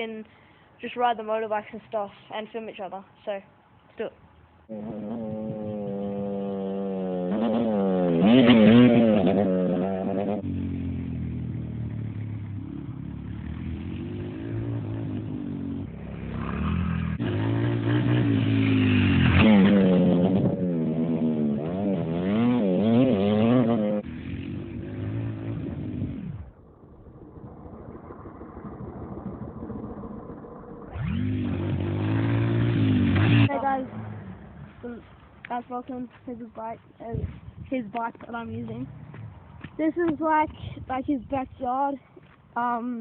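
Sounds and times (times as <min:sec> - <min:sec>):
dirt bike engine revving: 0:04.7 - 0:26.6, 0:28.6 - 0:35.2.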